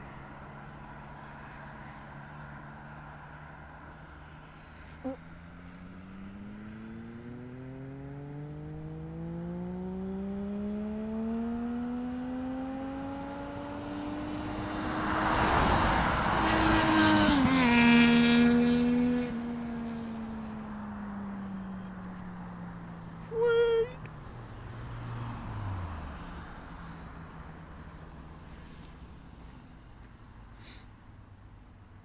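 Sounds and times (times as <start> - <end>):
motorcycle accelerating past: 0.2 - 23.3.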